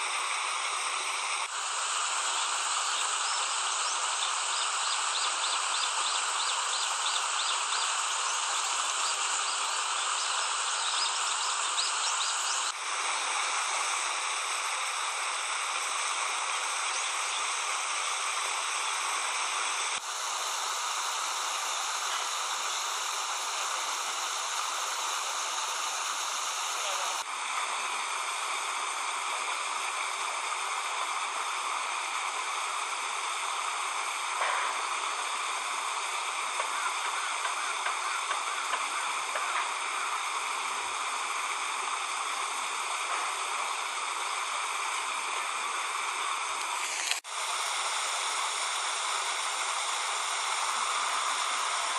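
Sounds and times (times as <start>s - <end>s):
running water rushing: 0.0s - 51.9s
faint insect or bird chirps: 2.3s - 12.7s, 15.3s - 19.4s, 20.0s - 27.2s.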